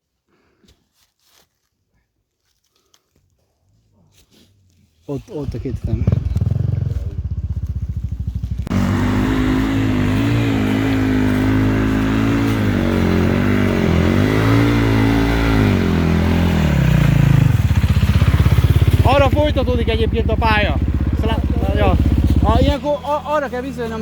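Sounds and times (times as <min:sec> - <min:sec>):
two-stroke motorcycle engine revving: 0:05.4 - 0:24.0.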